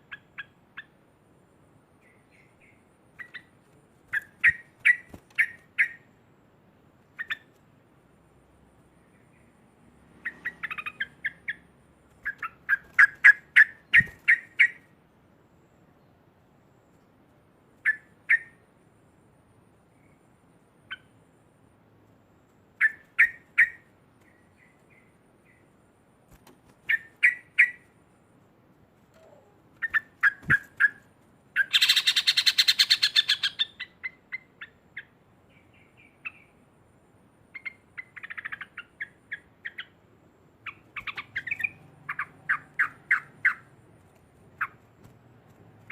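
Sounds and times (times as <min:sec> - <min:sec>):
bird harsh chatter: 0:31.6 - 0:33.8.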